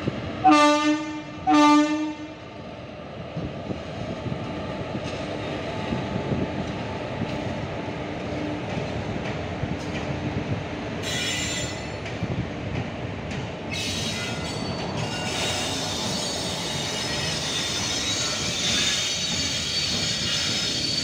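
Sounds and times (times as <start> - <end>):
train rumbling: 0.0 - 21.0
train wheels squealing: 11.0 - 12.0, 13.7 - 21.0.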